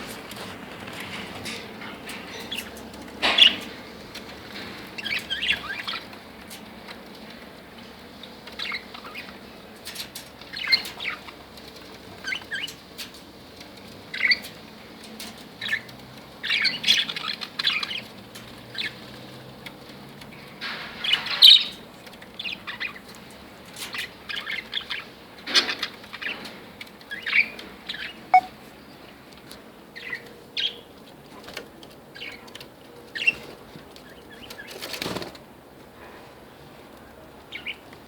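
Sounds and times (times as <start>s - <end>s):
budgerigars chirping: 28.0s - 28.5s.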